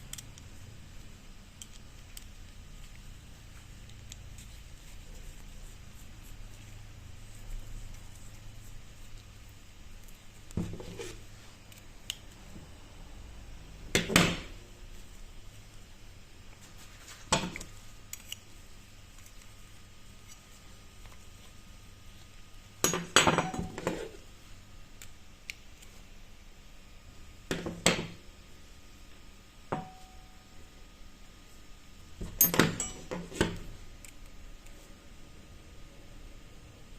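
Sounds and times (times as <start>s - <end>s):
metal tools clinking on workbench: 32.3s - 33.3s.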